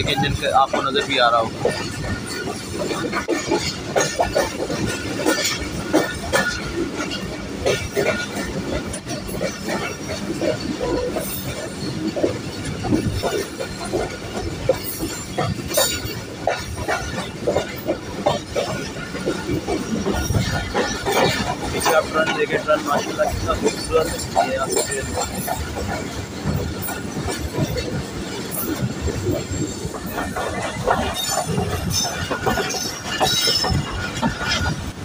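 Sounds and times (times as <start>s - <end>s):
wheels clacking at rail joints: 0.0s - 35.0s
high wheel squeal: 31.0s - 34.7s.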